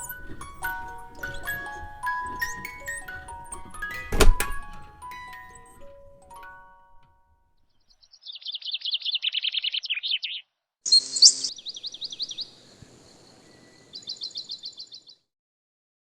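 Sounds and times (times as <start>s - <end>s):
bird trilling: 8.0s - 12.7s, 13.6s - 15.1s
harsh bird call: 8.3s - 15.1s.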